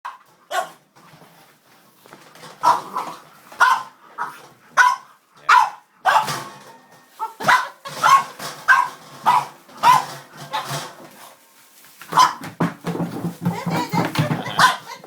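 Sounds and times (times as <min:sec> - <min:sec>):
dog barking: 0:00.1 - 0:00.8, 0:02.6 - 0:06.4, 0:07.3 - 0:10.7, 0:12.1 - 0:12.4, 0:14.6 - 0:15.0.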